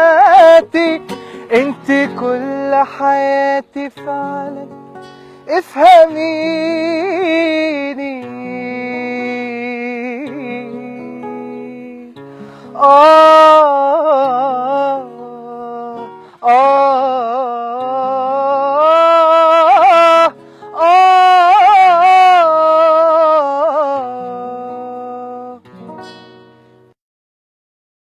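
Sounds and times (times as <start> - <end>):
acoustic guitar: 0.0 - 27.0
person singing wordless notes: 5.5 - 25.6.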